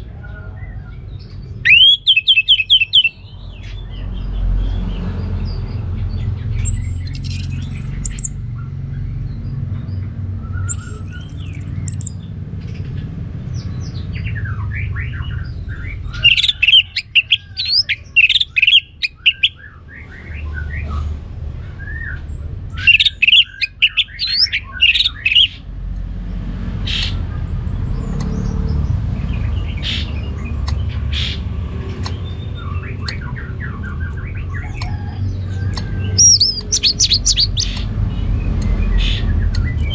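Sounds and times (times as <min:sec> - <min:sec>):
thrush singing: 0:06.2 - 0:08.6.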